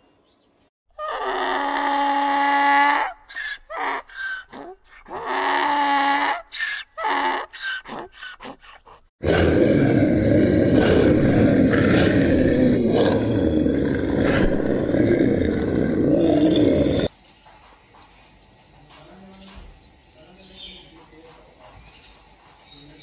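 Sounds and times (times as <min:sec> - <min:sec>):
bear growling and roaring: 0:07.1 - 0:17.1.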